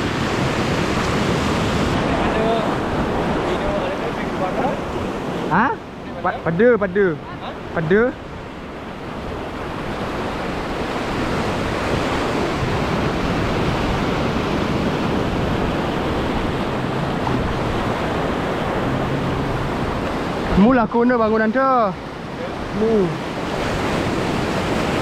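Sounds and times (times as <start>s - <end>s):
wind on microphone: 0.0s - 20.7s, 22.0s - 25.0s
sea water surging: 0.0s - 25.0s.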